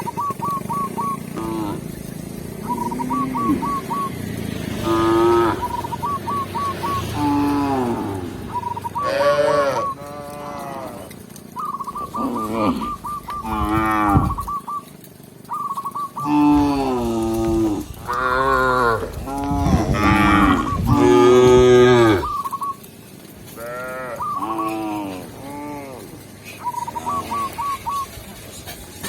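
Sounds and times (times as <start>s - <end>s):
cows mooing: 1.1s - 11.3s, 12.0s - 14.5s, 16.2s - 22.4s, 23.5s - 27.8s.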